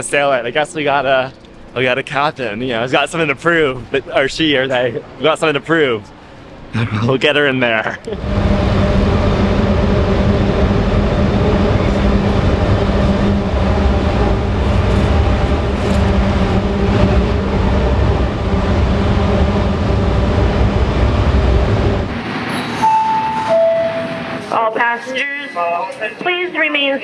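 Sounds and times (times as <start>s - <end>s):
diesel engine rumble: 8.1s - 22.8s.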